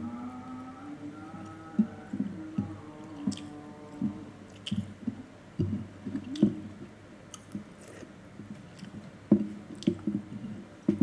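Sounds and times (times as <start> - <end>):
mouth smacks and clicks: 3.3 - 3.5, 4.5 - 4.9
person chewing wetly: 3.3 - 3.5, 4.5 - 5.0.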